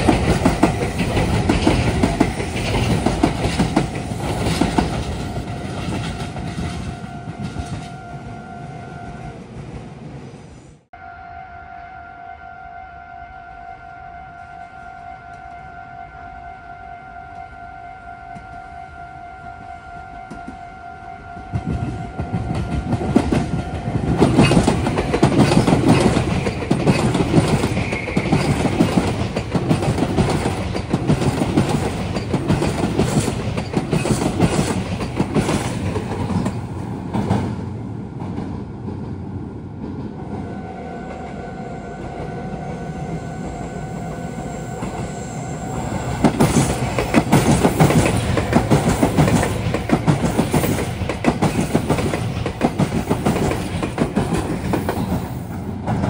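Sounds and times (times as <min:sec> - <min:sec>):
train wheels clattering over rail joints: 0:00.0 - 0:06.9, 0:21.6 - 0:37.6, 0:46.2 - 0:56.0.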